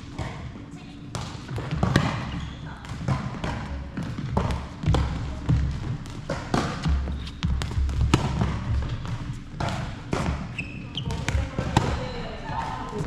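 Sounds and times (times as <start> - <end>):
racket hits: 3.0 - 12.0.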